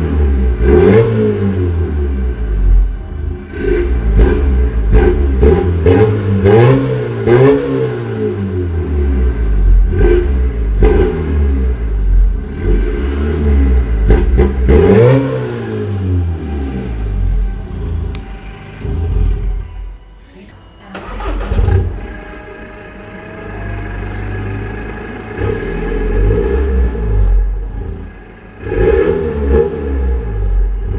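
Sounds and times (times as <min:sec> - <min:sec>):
diesel engine revving: 0:00.0 - 0:30.9.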